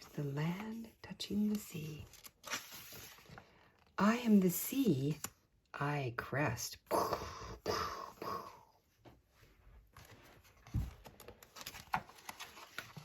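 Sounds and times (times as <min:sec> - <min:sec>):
paper rustle: 0:00.0 - 0:03.9, 0:09.9 - 0:13.0.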